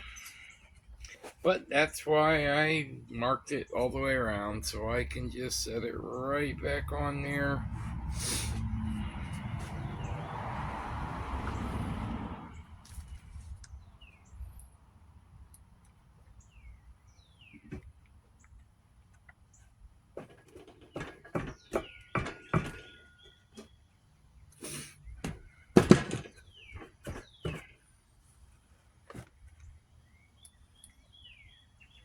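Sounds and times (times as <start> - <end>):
hard items clattering on workbench: 25.2 - 27.7
bird chirps: 29.6 - 32.0.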